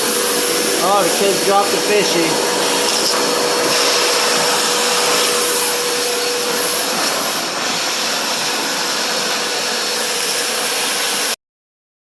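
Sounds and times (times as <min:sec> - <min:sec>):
shop vacuum running: 0:00.0 - 0:11.4.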